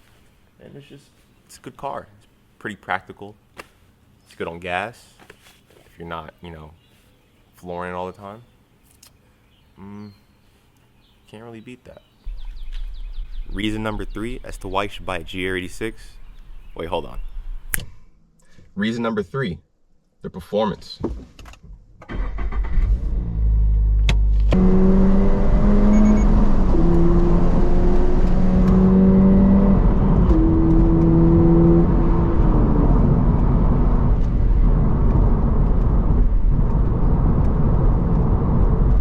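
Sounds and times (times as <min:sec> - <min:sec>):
road rumble: 0:12.2 - 0:18.0, 0:22.1 - 0:39.0
car engine pulling: 0:22.1 - 0:39.0.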